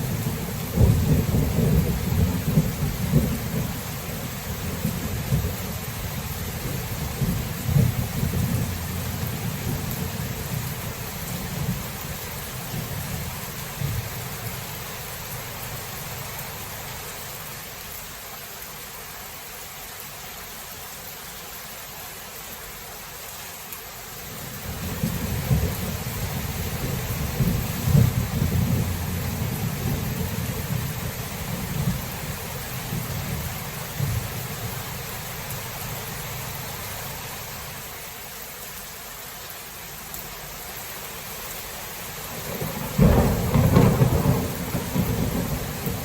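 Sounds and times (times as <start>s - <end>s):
low rolling thunder: 0.0s - 14.8s, 24.4s - 35.2s, 42.4s - 46.0s
steady rain hissing: 0.0s - 46.0s.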